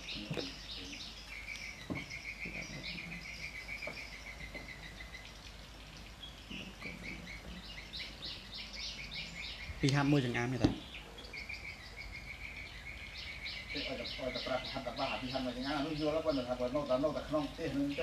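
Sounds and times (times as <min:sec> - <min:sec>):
birds chirping: 0:00.0 - 0:18.0
fast bird trill: 0:00.0 - 0:18.0
soft knocks: 0:01.8 - 0:03.0, 0:10.6 - 0:10.9.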